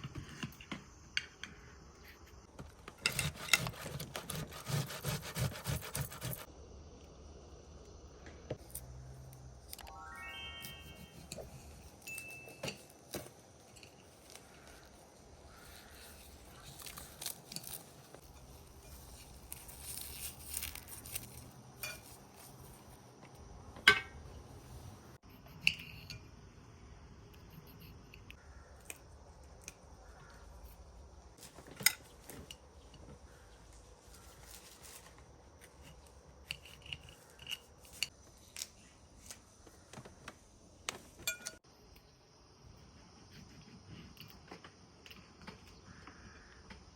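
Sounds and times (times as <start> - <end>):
utensils and dishes clinking: 10.9 - 14.4.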